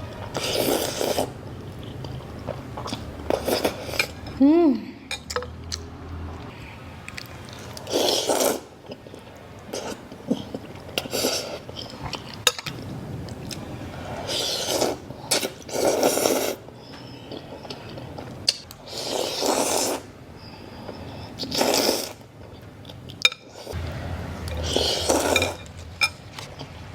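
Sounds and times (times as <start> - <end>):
person slurping noodle soup: 0.4 - 2.1, 2.8 - 4.2, 7.6 - 8.7, 9.7 - 12.2, 13.5 - 16.6, 18.9 - 20.1, 21.3 - 22.2, 24.5 - 25.7.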